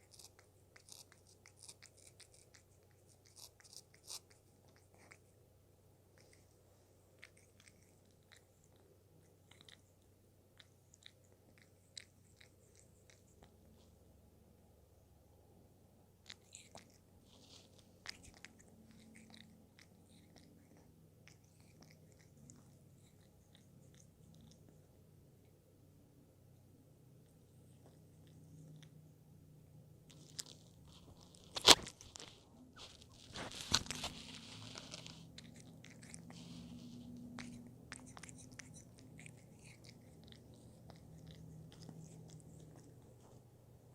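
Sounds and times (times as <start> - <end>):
cat chewing: 0.0 - 14.2, 16.1 - 25.4, 27.0 - 29.1, 30.0 - 43.9.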